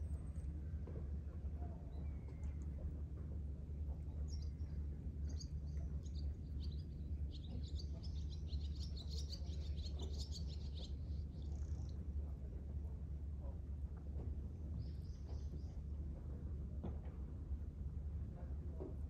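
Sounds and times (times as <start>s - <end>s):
steady low rumble: 0.0s - 19.0s
small birds chirping: 4.2s - 11.9s.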